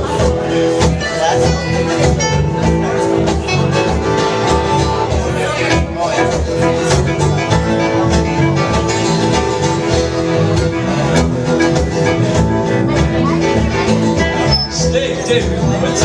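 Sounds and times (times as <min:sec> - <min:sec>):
live band playing instrumental: 0:00.0 - 0:16.0.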